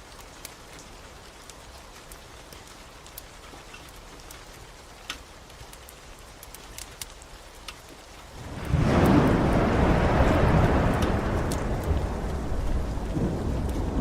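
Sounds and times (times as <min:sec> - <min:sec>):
steady rain: 0:00.0 - 0:14.0
wood fire crackling: 0:00.0 - 0:14.0
thunder rumbling: 0:08.4 - 0:14.0.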